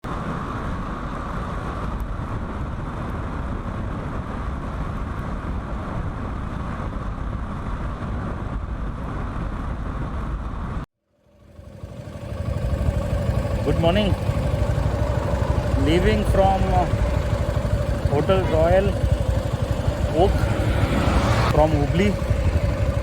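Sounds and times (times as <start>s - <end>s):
wind and road noise: 0.0s - 23.0s
motorcycle engine idling: 11.2s - 23.0s.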